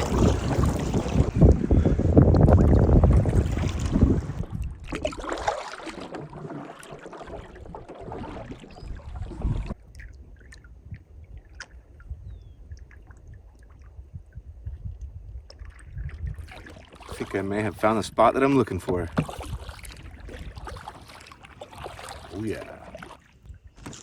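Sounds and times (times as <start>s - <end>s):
wind on microphone: 0.0s - 5.3s, 8.1s - 21.1s
water splashing around paddle: 0.0s - 14.1s, 14.9s - 24.0s
small drips and clicks: 12.7s - 17.2s.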